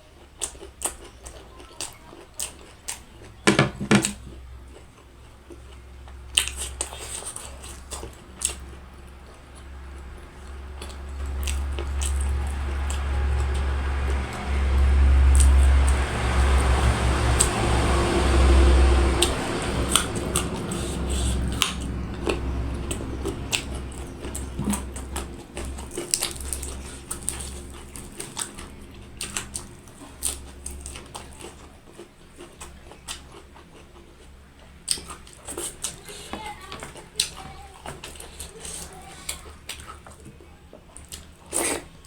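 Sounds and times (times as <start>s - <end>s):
chewing and biting: 0.0s - 3.4s, 4.0s - 42.0s
low rumble: 8.8s - 30.0s.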